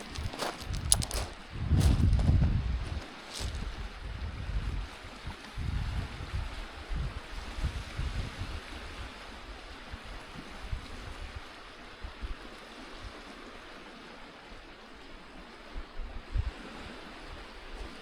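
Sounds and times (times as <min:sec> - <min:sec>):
waves washing on shore: 0:00.0 - 0:01.5
wind buffeting microphone: 0:00.0 - 0:11.5.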